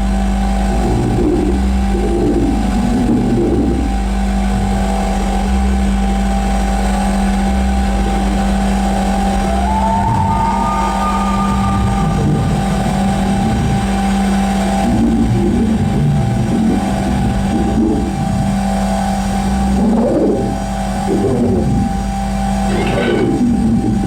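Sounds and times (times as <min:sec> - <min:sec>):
loud electronic drone: 0:00.0 - 0:24.0
thin rising tone: 0:09.2 - 0:17.8.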